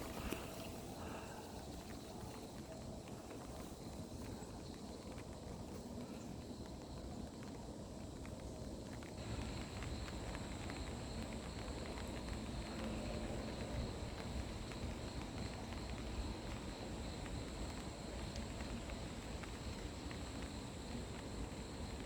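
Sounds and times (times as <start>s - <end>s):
insects trilling: 0.0s - 22.0s
wind rumble on microphone: 0.0s - 22.0s.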